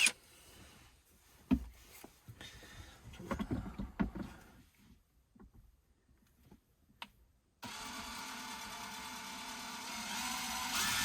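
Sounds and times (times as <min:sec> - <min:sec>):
drill and plastic trim bumping: 0:07.6 - 0:11.0.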